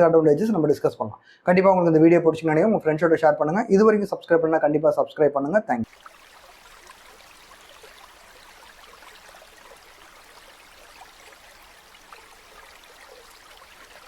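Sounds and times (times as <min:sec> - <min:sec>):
faint hiss of trickling water: 0:05.8 - 0:14.0.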